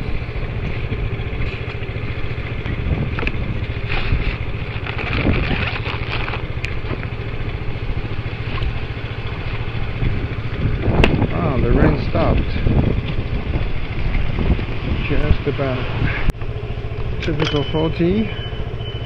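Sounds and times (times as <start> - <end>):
motorbike engine running: 0.0 - 19.0.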